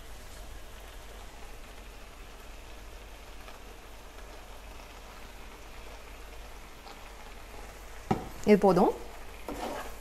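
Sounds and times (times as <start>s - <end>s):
mixture sizzling in a frying pan: 0.0s - 10.0s.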